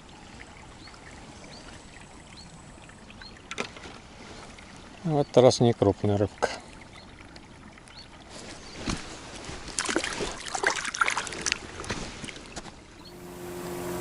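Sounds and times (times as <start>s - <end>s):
light water sounds: 0.0s - 14.0s
steady even hum: 13.0s - 14.0s.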